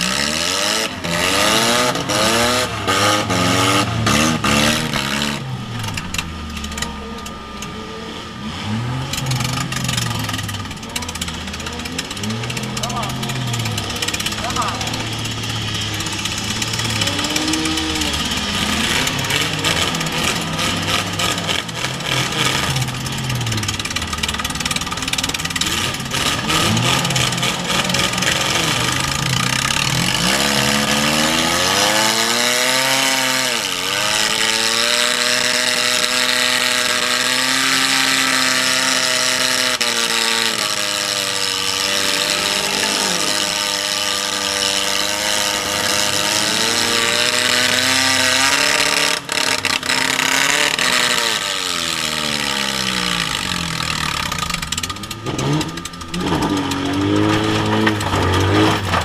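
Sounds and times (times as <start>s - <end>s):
car engine revving: 0.0s - 59.0s
loose metal clanking: 53.6s - 59.0s.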